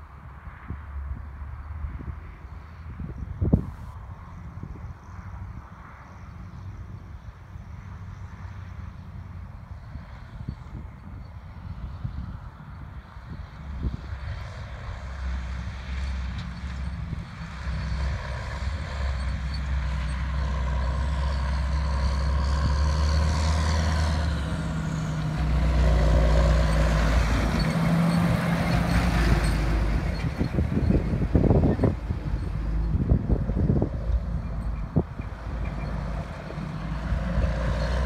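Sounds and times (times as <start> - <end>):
big diesel engine running: 14.4 - 38.0.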